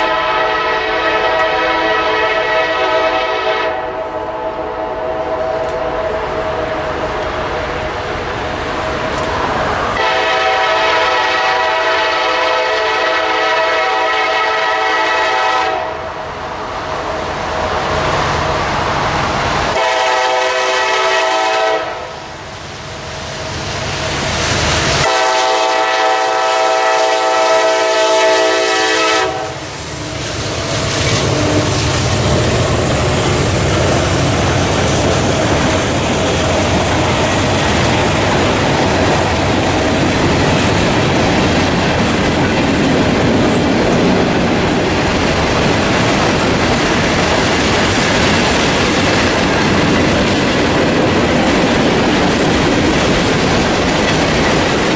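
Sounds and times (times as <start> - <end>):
locomotive air horn blasts: 0.0 - 6.6, 10.0 - 16.1, 19.8 - 22.2, 25.0 - 29.7
passing train rumbling: 0.0 - 54.9.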